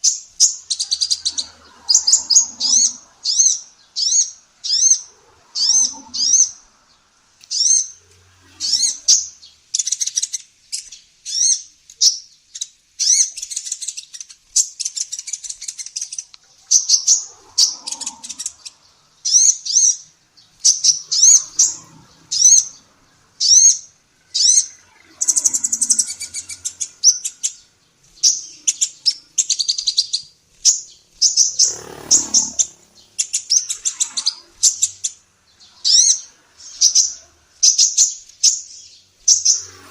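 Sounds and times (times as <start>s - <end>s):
sunbird singing high chirps: 0.0s - 39.9s.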